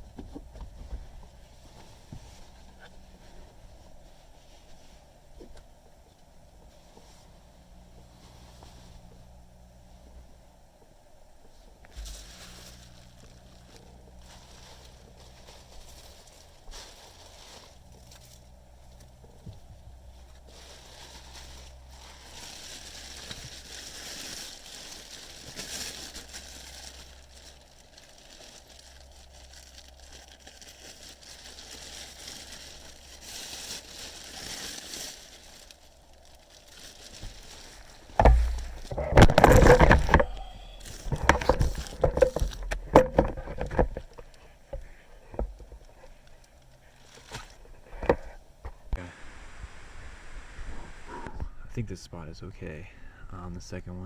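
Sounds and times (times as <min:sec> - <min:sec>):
rustling and bumping of objects: 0:00.0 - 0:49.0
knocks and clicks: 0:38.2 - 0:44.0
faint hiss: 0:44.1 - 0:54.0.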